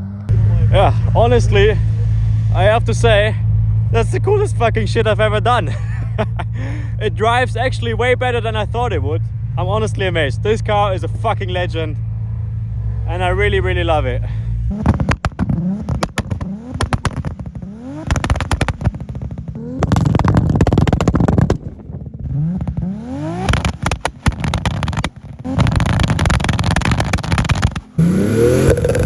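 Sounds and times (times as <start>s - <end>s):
car engine revving hard: 12.2s - 21.4s, 22.2s - 29.0s
antilag popping and banging: 14.7s - 21.6s.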